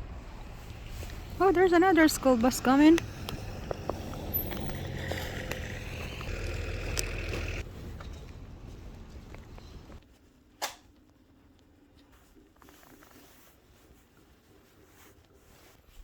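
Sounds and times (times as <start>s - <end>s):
bus driving past: 0.0s - 10.0s.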